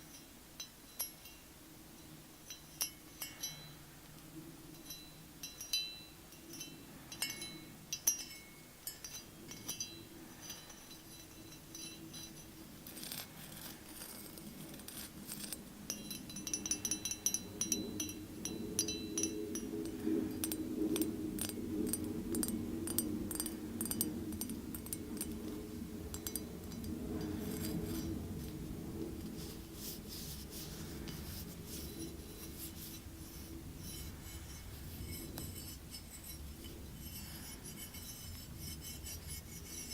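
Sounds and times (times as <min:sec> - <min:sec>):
scratching and rubbing: 0:12.2 - 0:15.6, 0:27.2 - 0:39.9.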